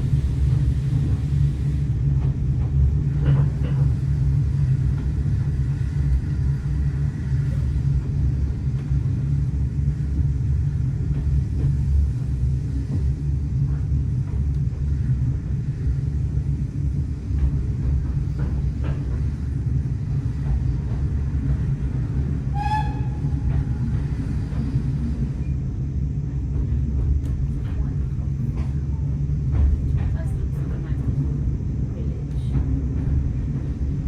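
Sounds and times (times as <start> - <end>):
train rumbling: 0.0 - 34.0
high-pitched train squeal: 22.4 - 25.6.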